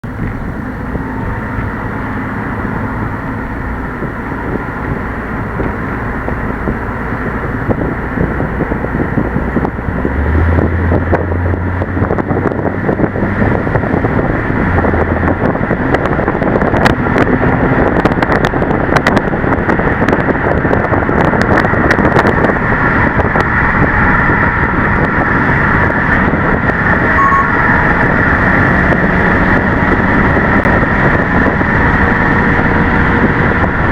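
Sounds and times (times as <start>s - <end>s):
car engine and exhaust: 0.0s - 33.9s
road and wind noise: 0.0s - 33.9s
low drone: 22.2s - 33.9s.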